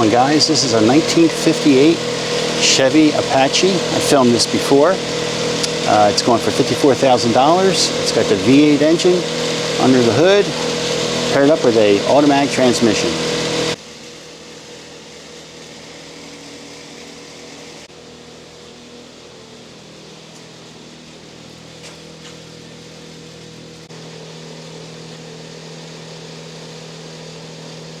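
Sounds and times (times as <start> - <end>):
mechanical hum with low tone: 0.0 - 28.0.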